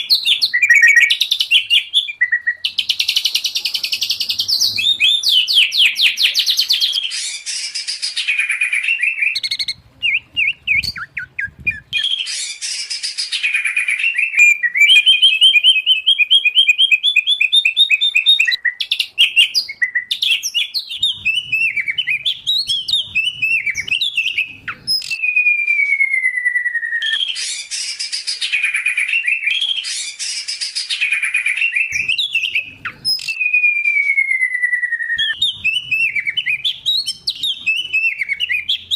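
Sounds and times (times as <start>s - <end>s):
long falling bird whistles: 0.0s - 3.4s, 4.0s - 38.9s
rapid bird chattering: 0.0s - 25.2s.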